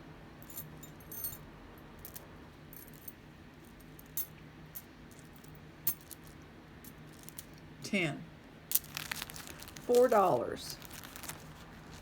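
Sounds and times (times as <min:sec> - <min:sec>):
bracelets clinking and jingling: 0:00.4 - 0:01.4, 0:02.0 - 0:03.2, 0:03.8 - 0:07.6.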